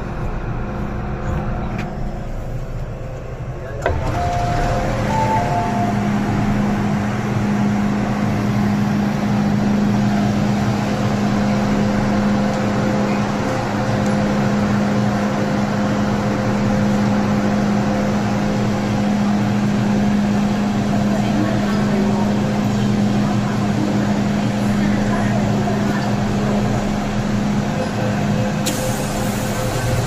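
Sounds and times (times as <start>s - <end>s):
train cabin rumble: 0.0s - 30.0s
low hum: 3.8s - 10.4s.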